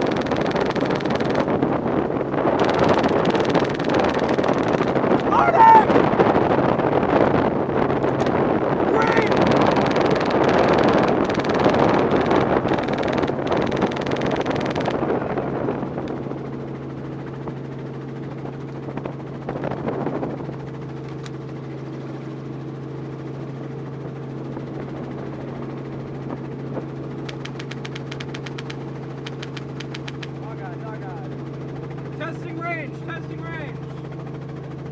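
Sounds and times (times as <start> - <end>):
fast high ticks: 0.0 - 1.5, 2.6 - 5.3, 9.3 - 15.0, 27.2 - 30.4
wind rushing: 0.0 - 16.6
helicopter engine and rotor hum: 0.0 - 34.9.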